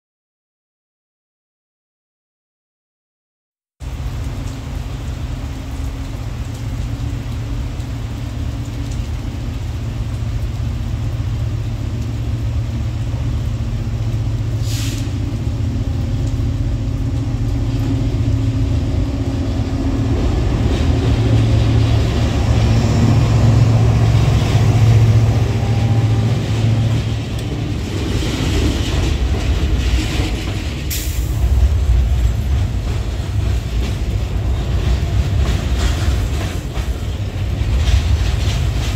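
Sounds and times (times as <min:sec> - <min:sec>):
diesel locomotive engine drone: 0:03.8 - 0:38.9
short sharp hiss: 0:14.6 - 0:15.2
freight wagons rolling past: 0:15.2 - 0:38.9.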